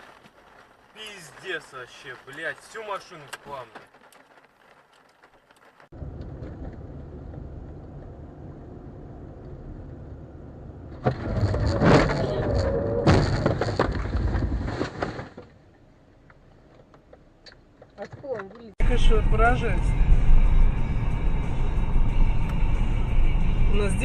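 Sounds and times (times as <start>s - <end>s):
car engine and road noise: 0.0s - 24.0s
loud crash: 11.0s - 15.3s.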